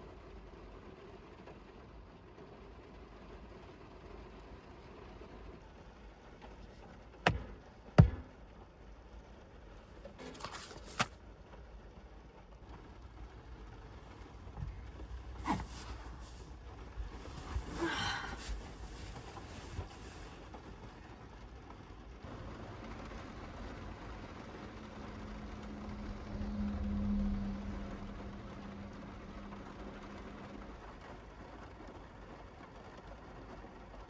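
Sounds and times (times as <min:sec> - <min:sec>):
low steady background noise: 0:00.0 - 0:34.0
sharp knocks inside a car: 0:07.3 - 0:08.4, 0:14.6 - 0:20.8
short rustle: 0:09.8 - 0:11.2, 0:14.1 - 0:21.1.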